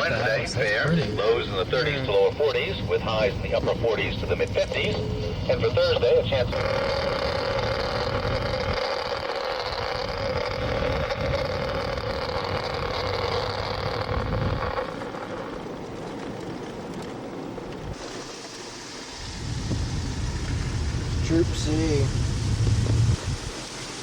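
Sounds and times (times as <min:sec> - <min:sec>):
steady hum: 0:00.0 - 0:15.9
car engine and road noise: 0:00.0 - 0:24.0.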